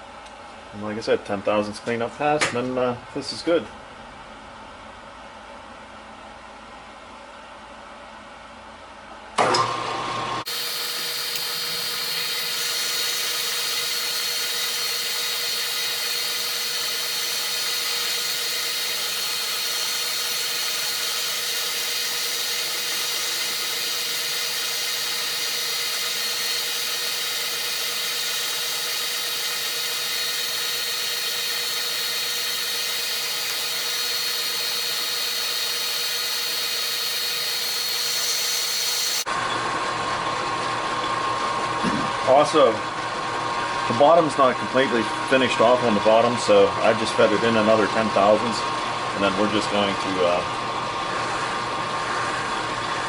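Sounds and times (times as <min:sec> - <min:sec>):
machine tool whining: 0:10.4 - 0:39.3.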